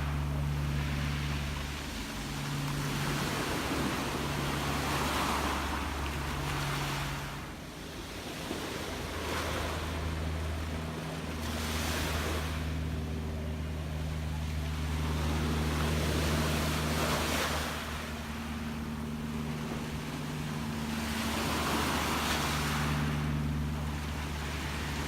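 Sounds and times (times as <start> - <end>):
gentle waves washing in: 0.0 - 25.0
steady low hum: 0.0 - 25.0.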